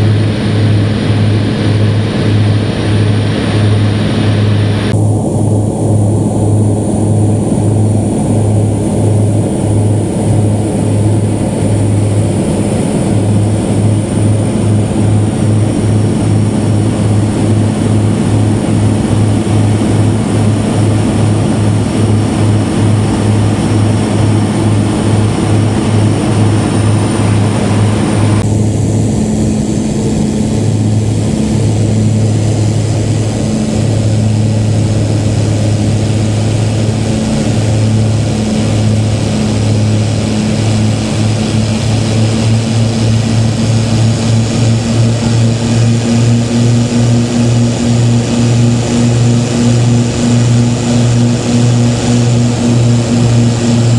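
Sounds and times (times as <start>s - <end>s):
faint high whine: 0.0s - 53.9s
propeller airplane engine droning: 0.0s - 53.9s.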